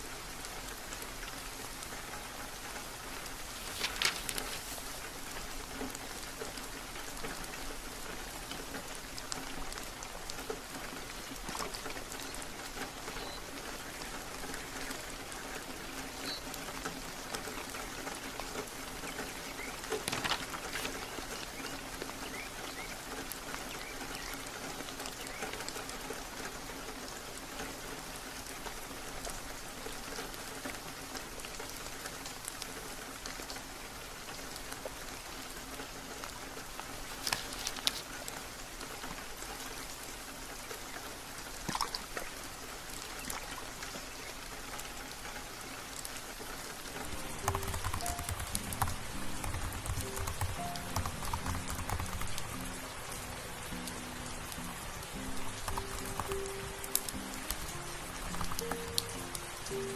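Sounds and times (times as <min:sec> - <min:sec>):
raindrops ticking on a surface: 0:00.0 - 0:59.9
steady rain: 0:00.0 - 0:59.9.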